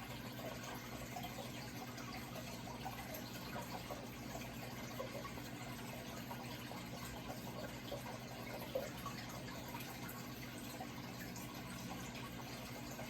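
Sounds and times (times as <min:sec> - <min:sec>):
low steady hum: 0:00.0 - 0:13.0
water trickling and splashing: 0:00.0 - 0:13.0.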